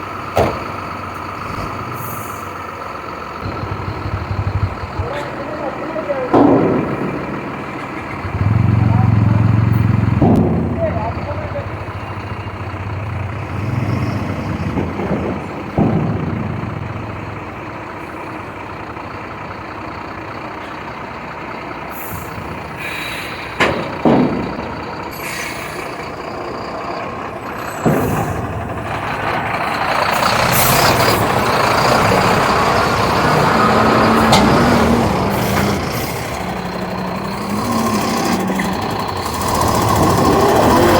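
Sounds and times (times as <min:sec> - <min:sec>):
diesel truck running: 0:00.0 - 0:40.9
sudden sharp sounds: 0:03.4 - 0:17.8.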